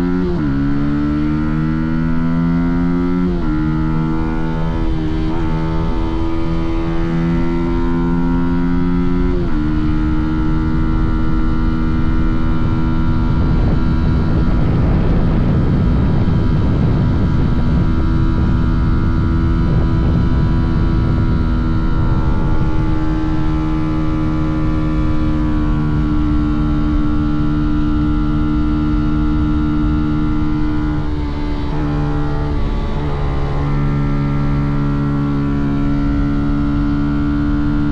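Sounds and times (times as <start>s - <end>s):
motorcycle engine running: 0.0s - 37.9s
rush of noise: 3.4s - 8.5s, 12.7s - 26.4s.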